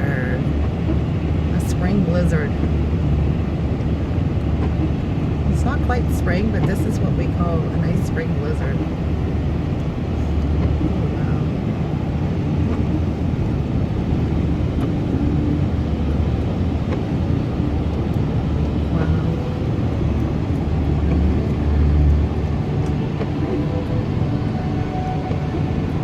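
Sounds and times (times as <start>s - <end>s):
car driving on snowy road: 0.0s - 26.0s.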